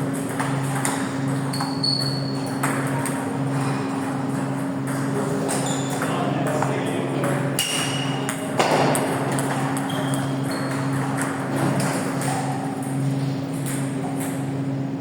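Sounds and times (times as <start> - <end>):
table tennis balls clicking: 0.1 - 3.2.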